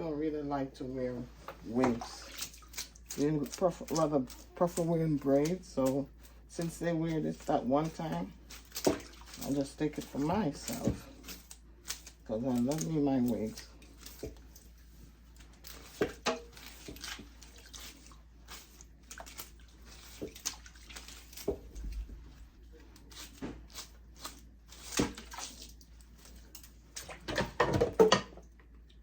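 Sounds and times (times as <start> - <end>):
water sloshing and dripping: 0.5 - 29.0
small splashes and clicks: 1.4 - 29.0.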